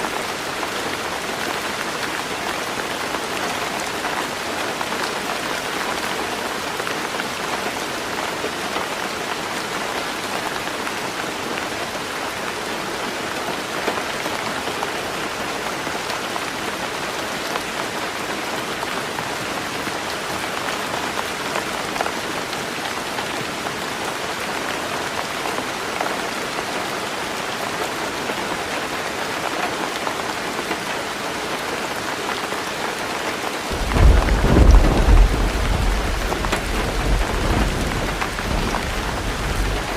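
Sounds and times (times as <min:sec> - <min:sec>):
heavy rain on a tin roof: 0:00.0 - 0:39.9
thunder rumble: 0:33.7 - 0:39.9.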